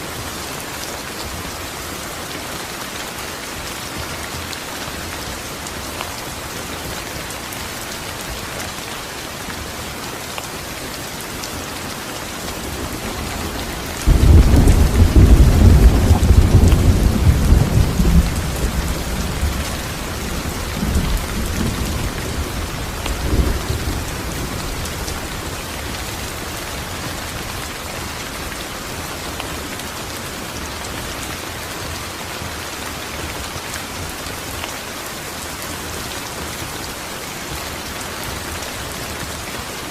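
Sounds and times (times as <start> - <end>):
steady rain falling: 0.0 - 39.9
thunder rumbling: 12.8 - 25.6.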